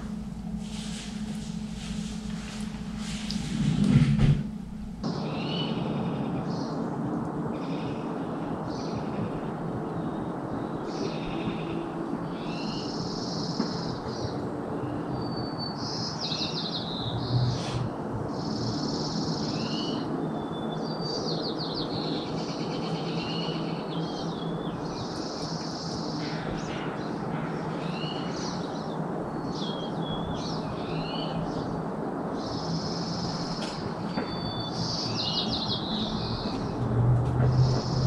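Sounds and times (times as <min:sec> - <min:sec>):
low background rumble: 0:00.0 - 0:15.1
songbirds singing: 0:05.0 - 0:38.0.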